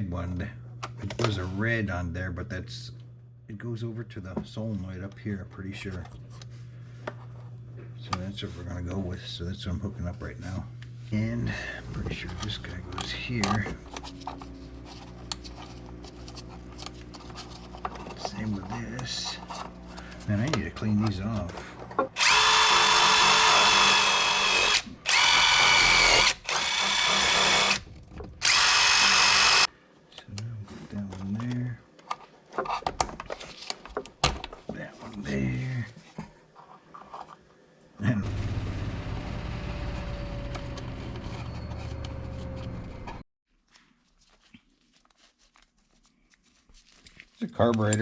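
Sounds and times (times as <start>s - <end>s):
power tool whining: 22.2s - 29.7s.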